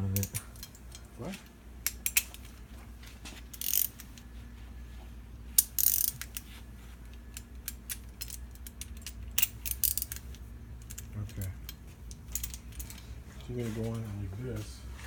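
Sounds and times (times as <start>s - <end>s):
hand ratchet clicking: 3.5s - 4.2s, 5.6s - 6.5s, 7.1s - 13.0s.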